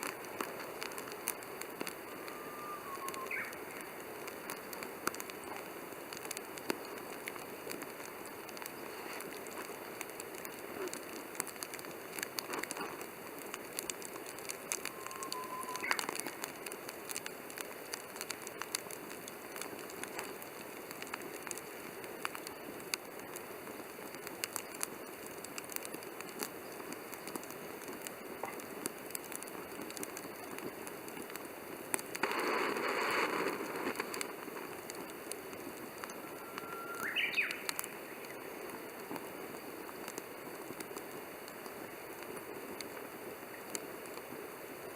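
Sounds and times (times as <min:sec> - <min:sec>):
campfire crackling and popping: 0:00.0 - 0:44.9
short rising whistle: 0:02.2 - 0:03.3, 0:14.9 - 0:16.1, 0:36.3 - 0:37.3.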